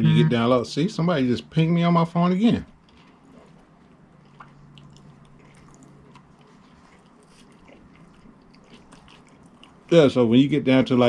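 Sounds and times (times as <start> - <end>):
low steady hum: 0.0 - 11.0
person chewing: 2.8 - 9.9.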